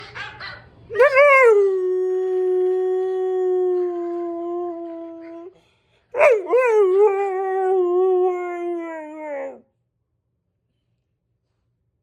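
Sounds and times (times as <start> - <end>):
dog howling: 0.9 - 5.4, 6.2 - 9.6.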